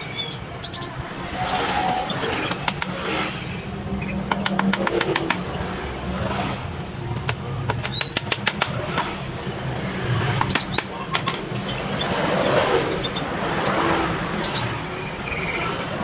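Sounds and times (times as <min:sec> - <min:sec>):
hammer tapping small nails: 0:04.3 - 0:05.4, 0:07.1 - 0:09.1.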